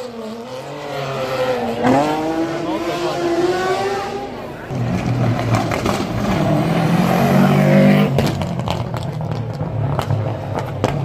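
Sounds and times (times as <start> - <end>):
car engine accelerating: 0.0 - 11.0
exhaust cracks: 8.0 - 11.0.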